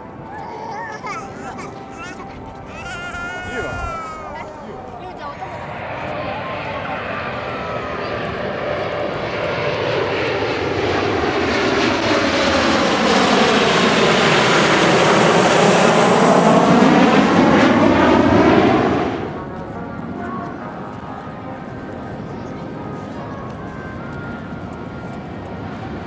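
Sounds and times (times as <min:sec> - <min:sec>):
jet engines passing low: 0:00.0 - 0:26.0.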